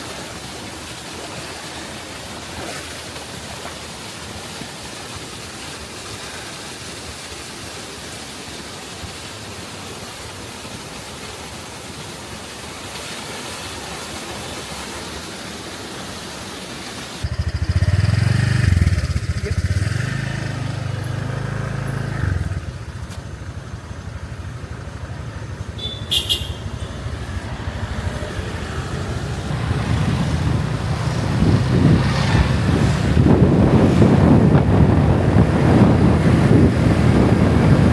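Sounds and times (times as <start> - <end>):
even rushing noise: 17.2 - 25.8, 26.5 - 37.9
wind buffeting microphone: 27.1 - 37.9.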